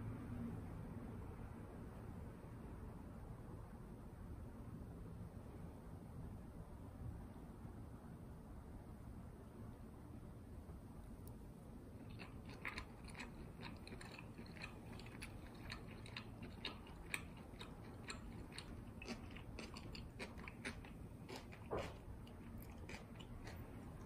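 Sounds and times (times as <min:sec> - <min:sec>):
chewing with crunches: 0:11.9 - 0:24.0.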